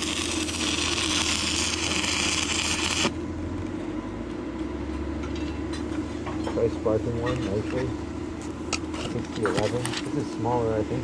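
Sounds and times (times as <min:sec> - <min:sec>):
welding arc crackling and hissing: 0:00.0 - 0:03.2
steady low hum: 0:00.0 - 0:11.0.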